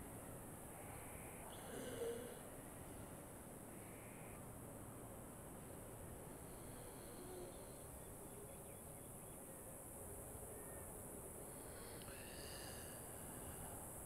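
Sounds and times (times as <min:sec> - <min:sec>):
steady background hiss: 0:00.0 - 0:14.0
faint bird calls: 0:00.7 - 0:02.5, 0:03.7 - 0:04.5, 0:06.6 - 0:09.7.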